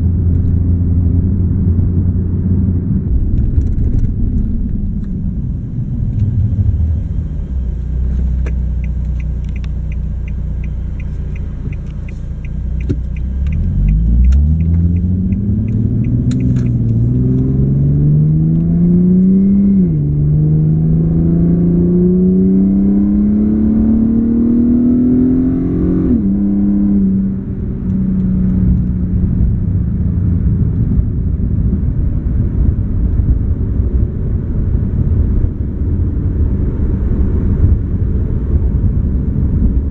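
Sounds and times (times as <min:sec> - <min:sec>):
car engine revving and shifting: 0:00.1 - 0:29.0
quick even ticking: 0:08.5 - 0:17.0.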